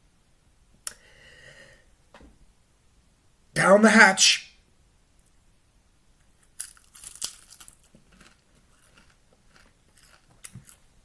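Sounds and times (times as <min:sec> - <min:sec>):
crisp crackles: 0:06.4 - 0:10.8
chewing clicks: 0:06.6 - 0:10.8.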